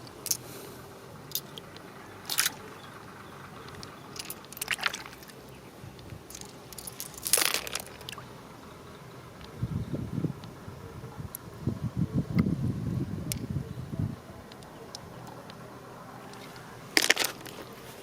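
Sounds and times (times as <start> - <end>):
hard shells clicking and crunching: 0.0 - 0.4, 1.3 - 2.6, 3.6 - 5.3, 6.0 - 8.2, 17.0 - 17.6.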